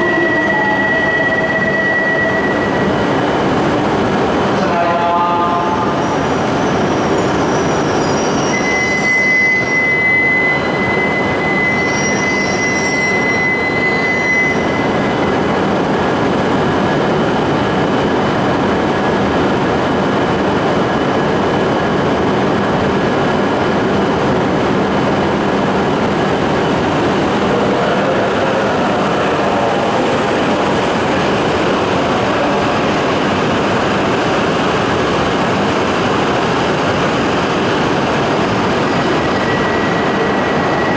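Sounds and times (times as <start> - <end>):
train rumbling through station: 0.0 - 40.9
high steady squeal: 6.1 - 15.5, 38.4 - 40.9.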